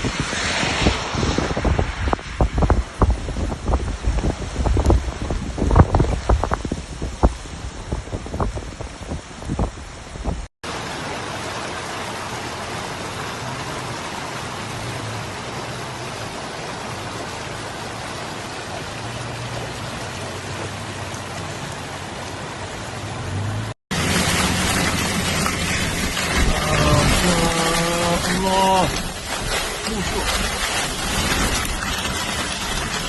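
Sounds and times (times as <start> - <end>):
wind buffeting microphone: 0.0 - 10.5, 24.0 - 33.0
heavy rain falling: 0.0 - 33.0.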